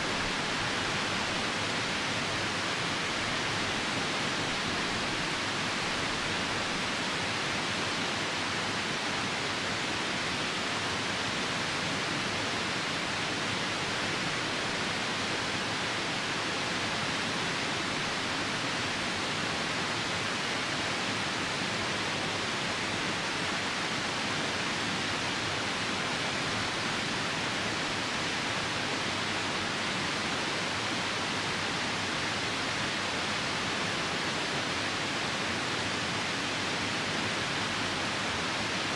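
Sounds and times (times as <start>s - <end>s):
rain falling: 0.0s - 8.0s, 22.2s - 38.9s
river water rushing: 0.0s - 38.9s.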